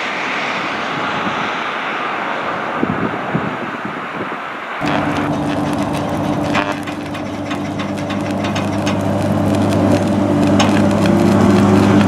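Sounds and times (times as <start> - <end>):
sharp clicks and rattles: 4.8 - 12.0
train motors humming: 4.8 - 12.0.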